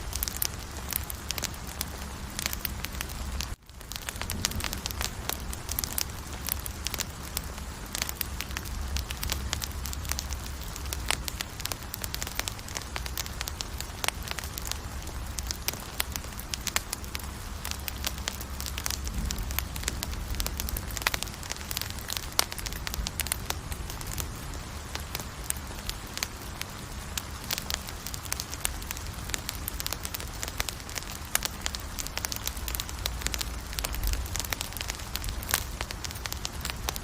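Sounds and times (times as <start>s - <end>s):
campfire crackling and popping: 0.0s - 37.0s
low rumble: 12.9s - 25.5s.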